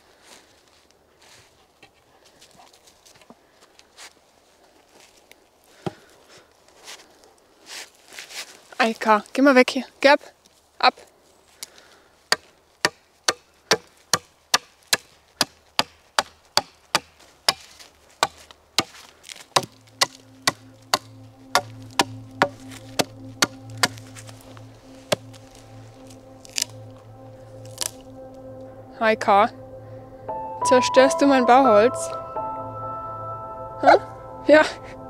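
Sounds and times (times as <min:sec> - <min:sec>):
low background music: 0:19.6 - 0:35.0.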